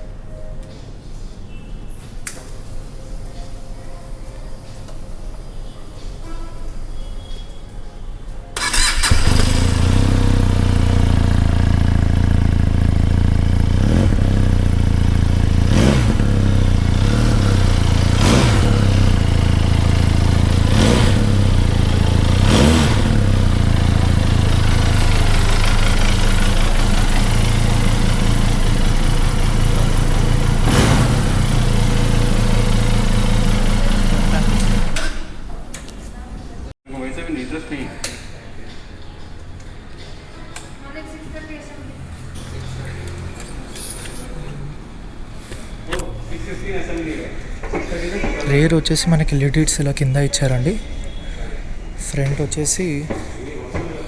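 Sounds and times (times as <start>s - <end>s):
motorcycle engine idling loudly: 8.6s - 35.0s
motorcycle engine revving: 8.6s - 35.4s
motorcycle engine starting: 8.6s - 35.5s.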